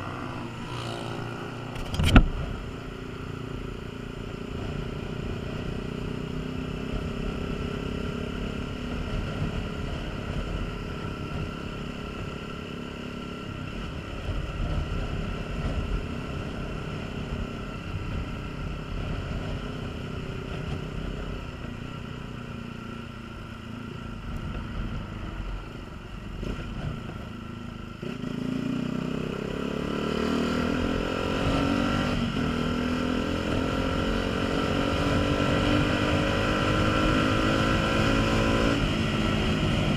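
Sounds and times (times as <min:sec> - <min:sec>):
wind rumbling on microphone: 0:00.0 - 0:03.4
motorcycle engine running: 0:00.0 - 0:39.9.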